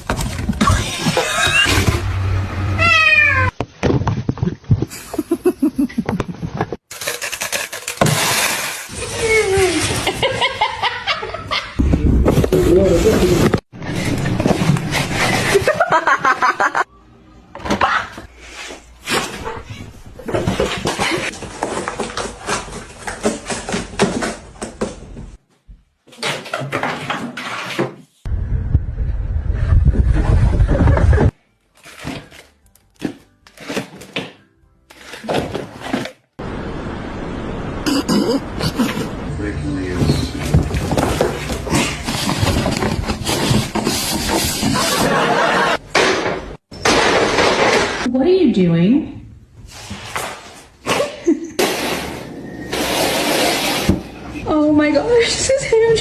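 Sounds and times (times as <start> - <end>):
cat meowing: 2.8 - 3.5.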